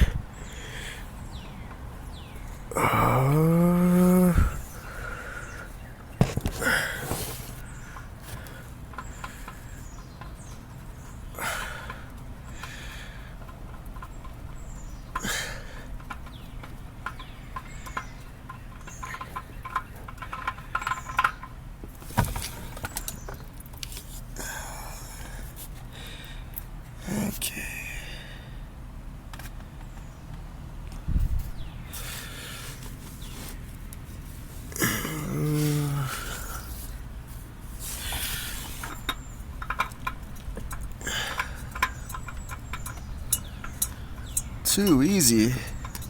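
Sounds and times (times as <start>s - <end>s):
clicks knocks and scraping: 6.2s - 9.4s
metal tools clinking: 38.8s - 46.0s.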